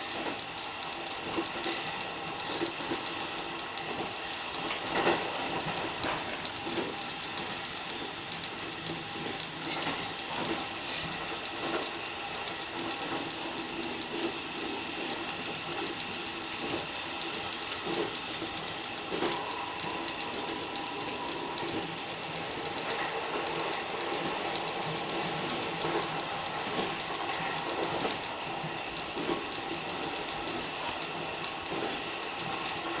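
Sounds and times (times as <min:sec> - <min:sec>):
faint train whine: 0:00.0 - 0:33.0
train rolling on rails: 0:00.0 - 0:33.0.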